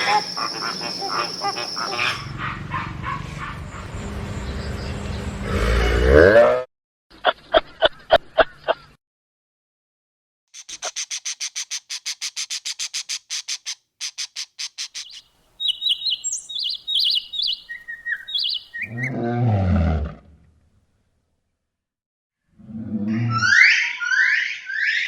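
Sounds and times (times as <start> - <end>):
bird high chirps: 0.0 - 2.3, 10.6 - 19.1.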